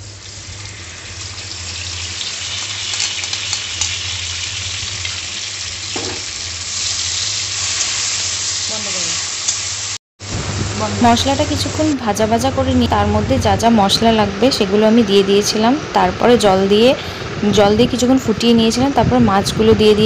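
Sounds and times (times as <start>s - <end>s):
spice paste sizzling in hot oil: 0.0s - 10.0s
low hum: 10.2s - 20.0s.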